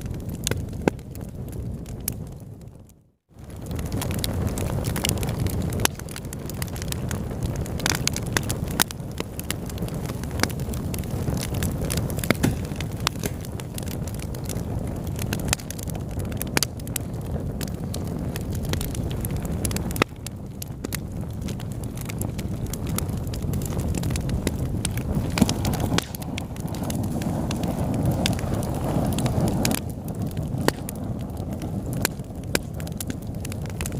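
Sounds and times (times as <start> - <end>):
fire crackling and popping: 0.0 - 33.9
fire rumbling: 0.0 - 33.9.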